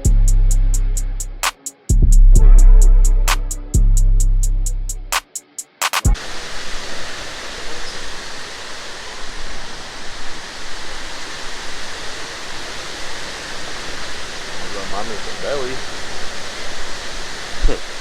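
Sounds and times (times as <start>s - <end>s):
music track: 0.0s - 6.2s
sharp ticks: 5.0s - 6.2s
waterfall rushing: 6.2s - 18.0s.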